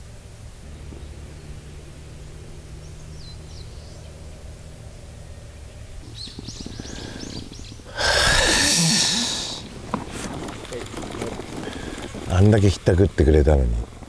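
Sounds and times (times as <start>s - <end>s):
songbird chirping: 0.0s - 12.9s
steady low rumble: 0.0s - 14.0s
loud rush of noise: 7.8s - 10.1s.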